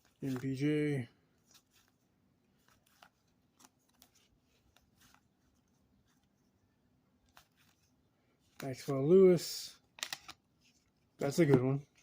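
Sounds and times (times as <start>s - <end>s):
trading cards being flipped: 0.0s - 0.8s, 1.4s - 6.4s, 7.2s - 9.0s, 9.9s - 12.0s.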